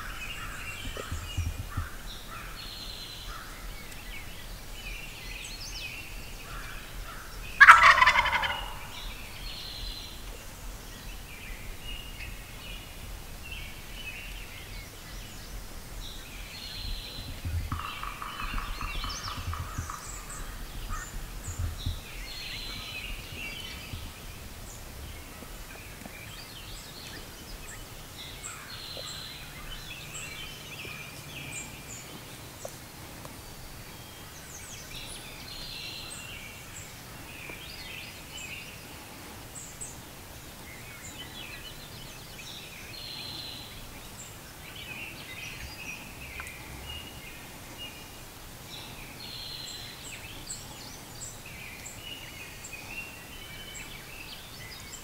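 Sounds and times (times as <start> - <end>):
bird calls: 0.0 - 55.0
low rumble of background noise: 0.0 - 55.0.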